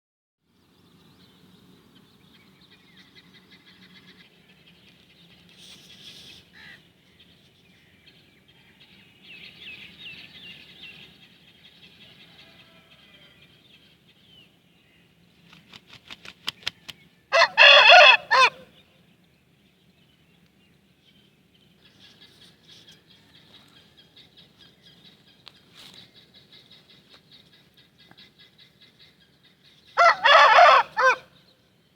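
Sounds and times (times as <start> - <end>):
rooster crowing: 12.0 - 13.5, 17.3 - 18.7, 30.0 - 31.3
rooster flapping wings: 15.5 - 17.0.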